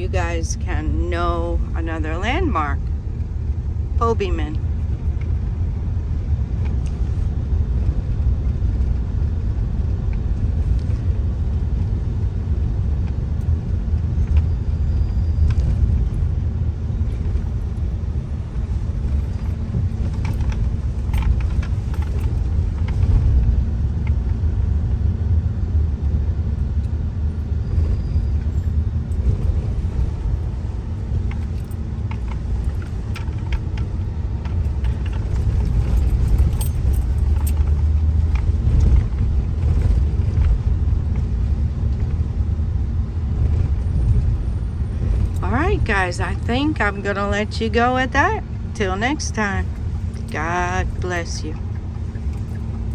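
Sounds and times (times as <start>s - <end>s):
car engine and tyre rumble: 0.0s - 52.9s
light clicks and rattles: 18.6s - 24.2s, 27.8s - 42.2s, 49.6s - 52.9s.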